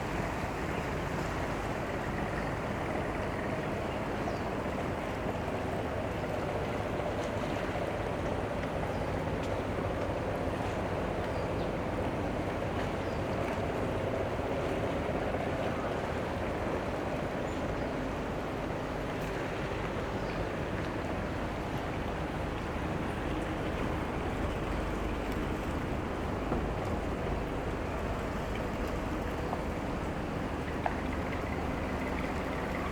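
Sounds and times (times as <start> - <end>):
low boat engine drone: 0.0 - 32.9
water noise: 11.8 - 32.9.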